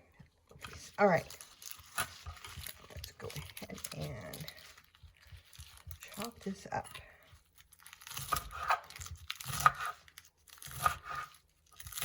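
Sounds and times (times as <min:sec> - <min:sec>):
knife chopping crisp lettuce: 0:01.6 - 0:06.4, 0:07.6 - 0:12.0.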